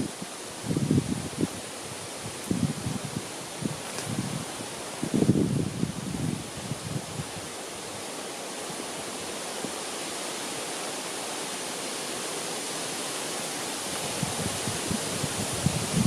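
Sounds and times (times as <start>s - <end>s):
wind rushing through trees: 0.0s - 16.0s.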